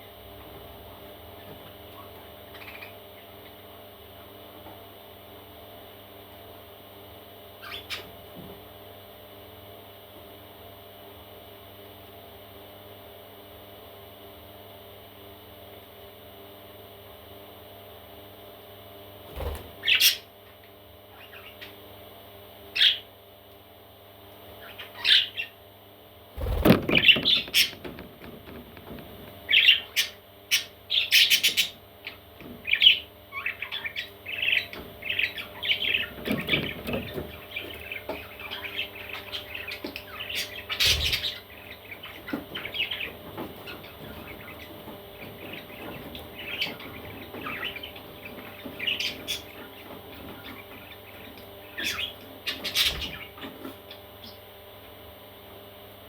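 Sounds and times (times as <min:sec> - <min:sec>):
parrot chicks chirping and squawking: 0:00.4 - 0:04.6, 0:07.5 - 0:08.5, 0:19.3 - 0:23.2, 0:24.3 - 0:25.7, 0:26.4 - 0:55.3.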